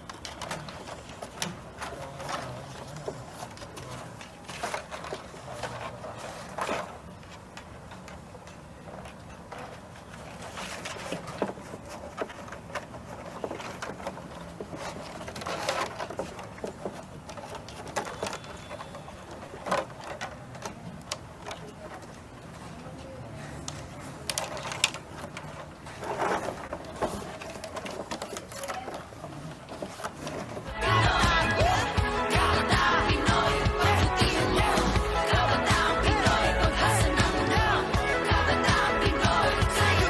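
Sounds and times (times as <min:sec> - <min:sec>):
materials being handled: 0:00.0 - 0:31.9.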